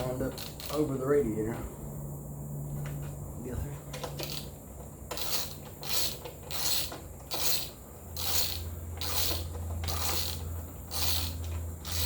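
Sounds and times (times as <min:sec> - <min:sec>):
ratchet wrench clicking: 0:00.3 - 0:00.9, 0:04.0 - 0:04.5, 0:05.1 - 0:12.0.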